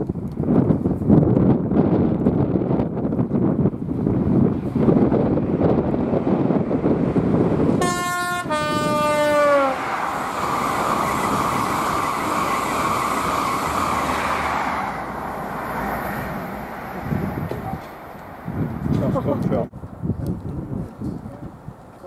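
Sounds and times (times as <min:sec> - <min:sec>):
train coaches rushing past: 0:04.8 - 0:19.2
two-tone train horn: 0:07.8 - 0:10.0.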